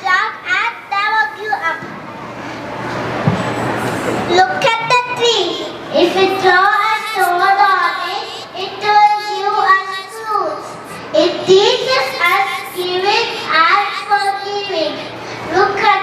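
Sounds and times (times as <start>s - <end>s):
child singing: 4.4s - 16.0s.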